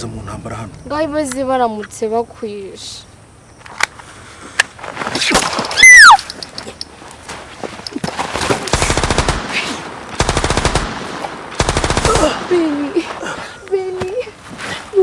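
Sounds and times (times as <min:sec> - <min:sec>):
whistle falling in pitch: 0:05.7 - 0:06.3
machine-gun fire: 0:08.7 - 0:13.1.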